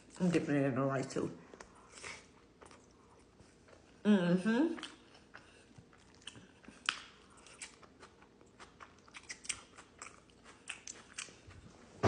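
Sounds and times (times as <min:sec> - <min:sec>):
person chewing food: 0:01.5 - 0:04.0, 0:04.8 - 0:11.8.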